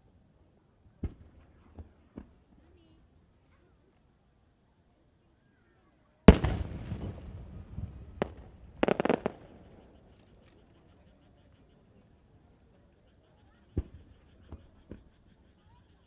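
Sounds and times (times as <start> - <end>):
firework shell booming: 6.3 - 9.9
crackling firework reports: 6.3 - 10.4
firework sharp crack: 6.3 - 10.4.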